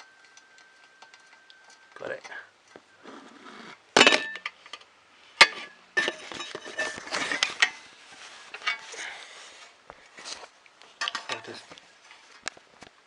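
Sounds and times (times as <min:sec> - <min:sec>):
small clinks and rattles: 0:00.0 - 0:02.8.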